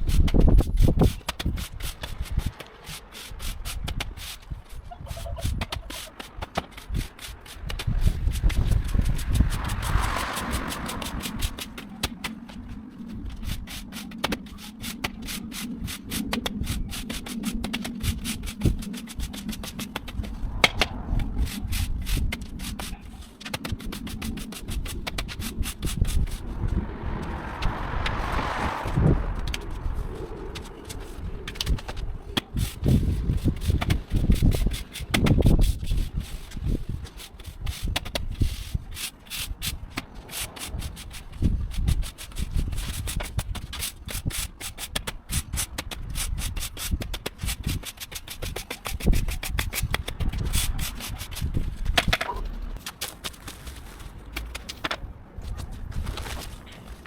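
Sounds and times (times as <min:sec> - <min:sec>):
stiff broom sweeping paving: 0:00.0 - 0:57.0
stiff broom sweeping sand: 0:01.0 - 0:11.9, 0:13.4 - 0:20.6.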